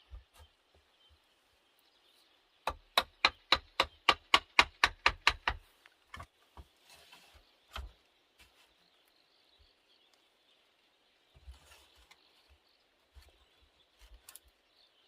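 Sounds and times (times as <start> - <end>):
hand tool striking wood: 2.6 - 6.3.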